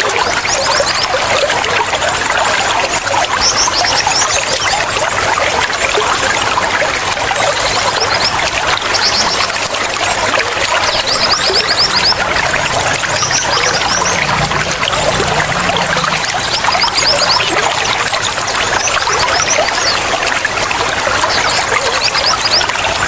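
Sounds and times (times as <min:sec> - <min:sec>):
water trickling and splashing: 0:00.0 - 0:23.0
high bird chirps: 0:10.7 - 0:18.1.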